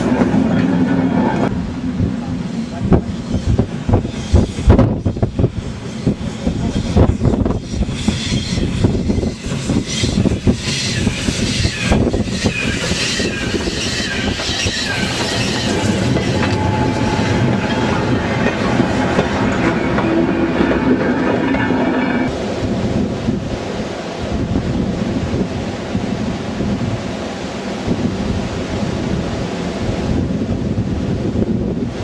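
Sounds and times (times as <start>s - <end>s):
steam locomotive passing: 0.0s - 32.0s
wheel squeal: 7.6s - 22.3s
wagons clickety-clack over rail joints: 11.9s - 22.3s.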